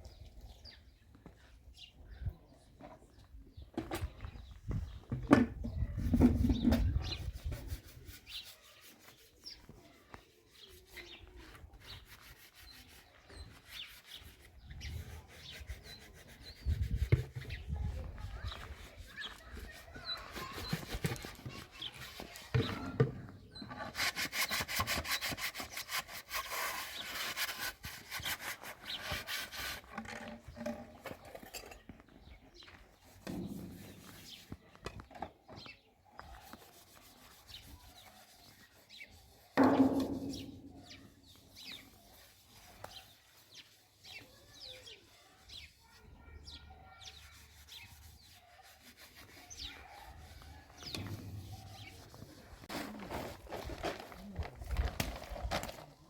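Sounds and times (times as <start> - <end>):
rubbing and scraping by hand: 3.8 - 56.0
fast rasping strokes: 23.8 - 30.0, 47.2 - 53.4.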